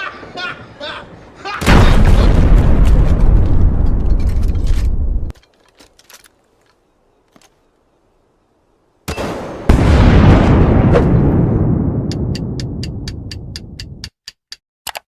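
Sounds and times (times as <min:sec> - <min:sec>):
loud crackling rumbling bursts: 0:01.6 - 0:05.3, 0:09.7 - 0:14.0.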